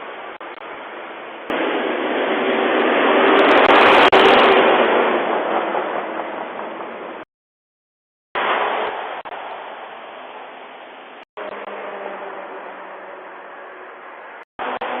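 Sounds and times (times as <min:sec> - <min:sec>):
steady low hum: 0:00.2 - 0:07.2
truck driving past: 0:01.5 - 0:07.2.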